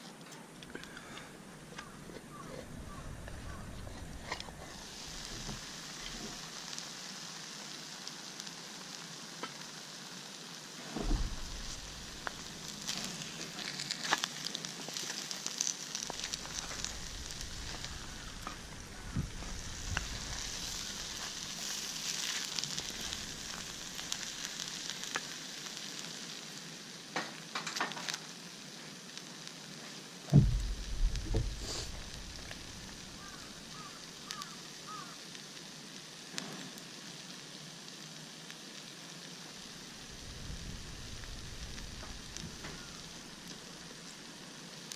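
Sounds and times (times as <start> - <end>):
food sizzling in a pan: 0.8 - 44.9
dull knocks: 30.3 - 32.0.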